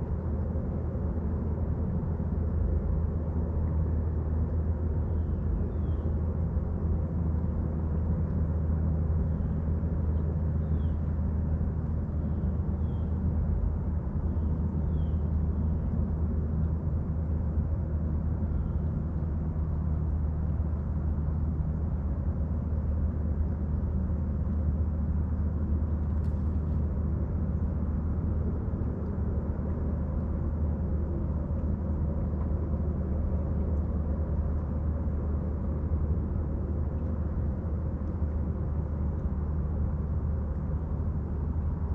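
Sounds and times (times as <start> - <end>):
engine rumble: 0.0 - 41.9.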